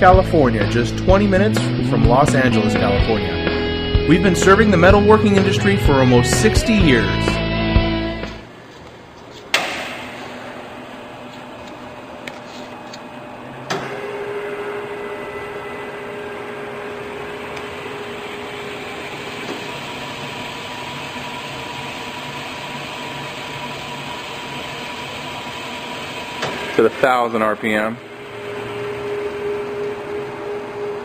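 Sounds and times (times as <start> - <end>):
lathe whining: 10.3 - 31.0.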